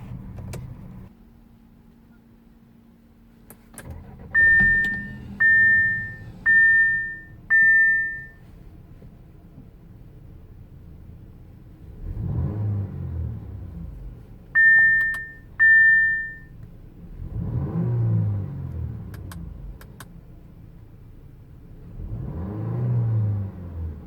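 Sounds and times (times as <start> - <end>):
car engine revving: 3.9 - 8.3, 11.8 - 14.3, 16.0 - 20.1, 21.7 - 24.0
loud high beeps: 4.4 - 8.4, 14.6 - 16.5.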